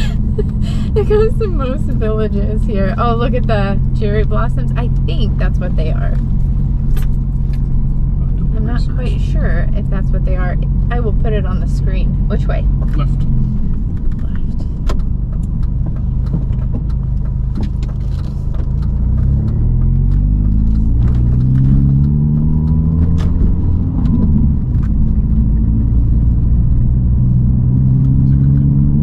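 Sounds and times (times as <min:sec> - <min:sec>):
car engine accelerating: 0:00.0 - 0:29.0
clicks and rattles from car: 0:05.8 - 0:08.5, 0:12.5 - 0:27.0.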